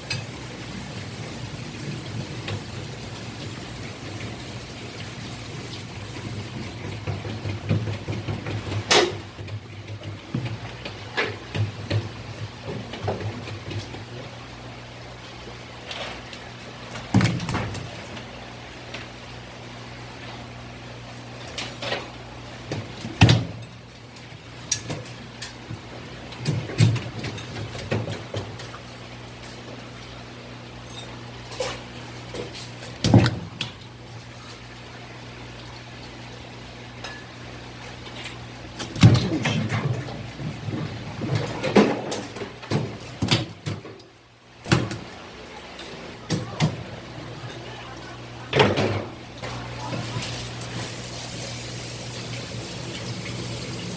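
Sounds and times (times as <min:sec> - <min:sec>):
sharp knocks and clatters: 0:06.6 - 0:14.0.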